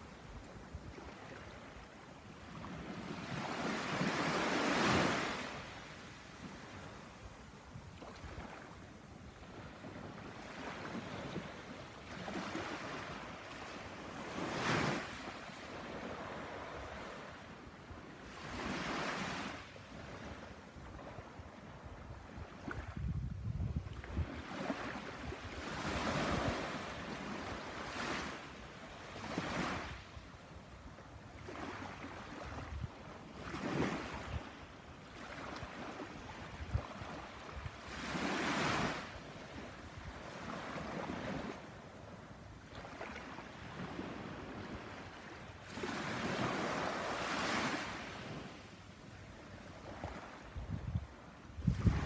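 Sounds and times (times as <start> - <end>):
wind buffeting microphone: 21.9 - 24.4, 50.5 - 52.0.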